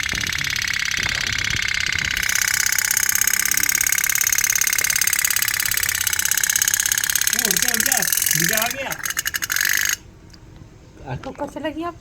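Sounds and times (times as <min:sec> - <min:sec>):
toy steam boat putt-putting: 0:00.0 - 0:10.4.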